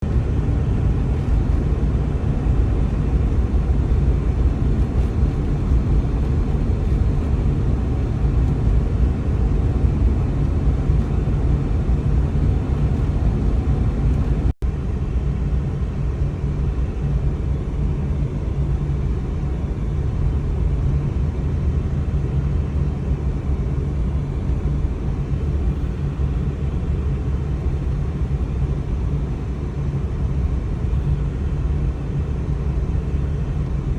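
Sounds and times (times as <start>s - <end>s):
car driving on snow: 0.0s - 14.5s.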